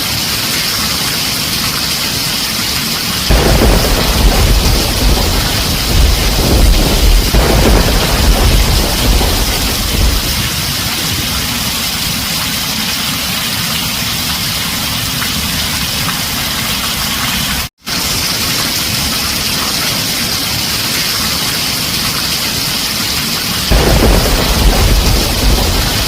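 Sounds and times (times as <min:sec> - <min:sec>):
heavy rain on a tin roof: 0:00.0 - 0:26.0
low rumble: 0:03.3 - 0:11.1, 0:23.7 - 0:26.0.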